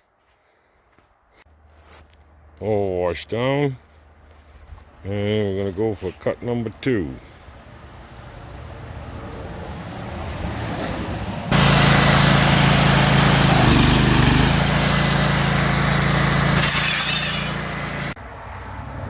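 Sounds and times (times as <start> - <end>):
saw blade cutting wood: 11.5 - 18.2
sawmill engine drone: 11.5 - 18.2.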